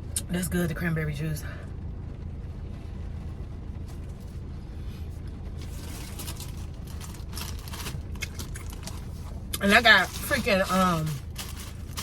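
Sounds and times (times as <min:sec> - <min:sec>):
steady low hum: 0:00.0 - 0:12.0
plastic bag crinkling: 0:05.7 - 0:12.0.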